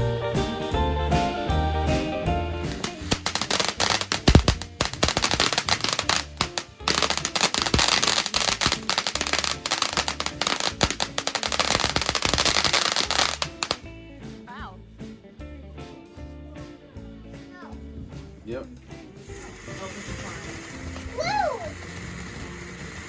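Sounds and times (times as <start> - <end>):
background music: 0.0 - 23.0
firework crackling: 2.7 - 13.8, 19.3 - 23.0.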